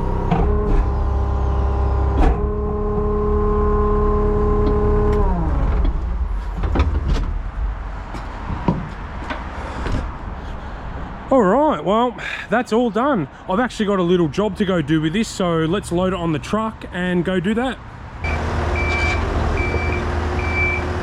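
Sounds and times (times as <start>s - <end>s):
skid steer engine whining: 0.0s - 6.5s, 18.2s - 21.0s.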